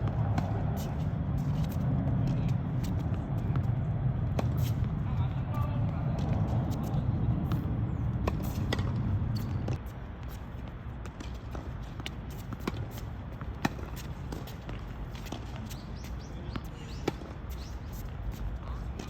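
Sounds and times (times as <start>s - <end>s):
footsteps scuffing on court: 0.0s - 5.0s
low rumble: 0.0s - 9.8s
tennis ball hits and bounces: 5.6s - 10.4s, 11.0s - 17.7s.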